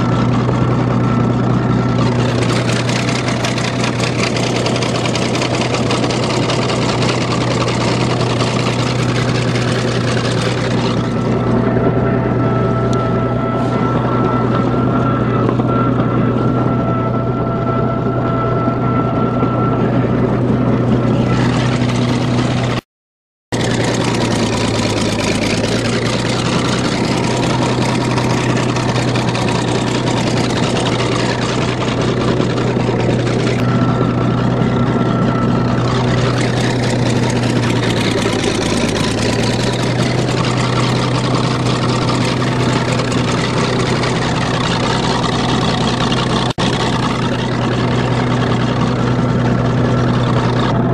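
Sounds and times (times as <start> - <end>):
diesel bulldozer engine running: 0.0 - 22.8, 23.5 - 50.9.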